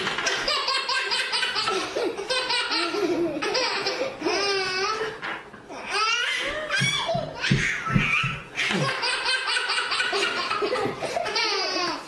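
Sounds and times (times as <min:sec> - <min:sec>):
baby laughing: 0:00.0 - 0:05.2, 0:05.8 - 0:12.0.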